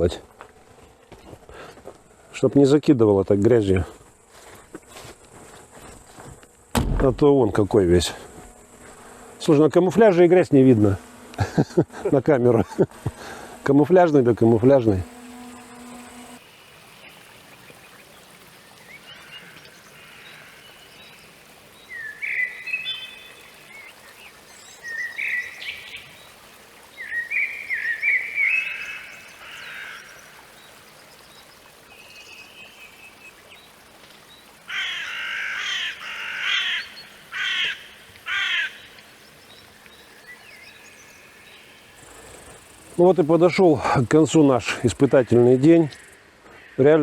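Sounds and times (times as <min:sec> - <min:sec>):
harsh rasping bird calls: 0:13.2 - 0:31.7, 0:34.6 - 0:42.4
birds chirping whistles: 0:20.4 - 0:29.9.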